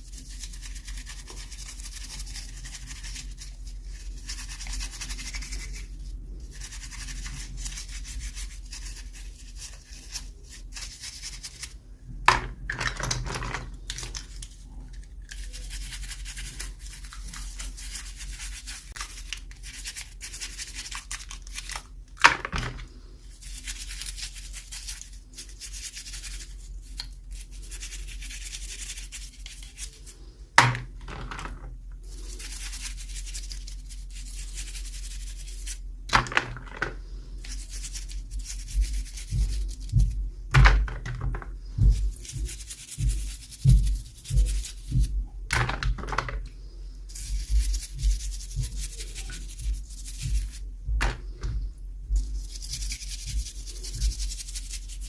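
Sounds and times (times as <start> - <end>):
hands rubbing packaging: 0.0 - 11.8, 13.7 - 21.9, 23.3 - 30.3, 32.0 - 35.8, 37.0 - 40.2, 41.7 - 45.1, 47.1 - 51.4, 52.2 - 55.0.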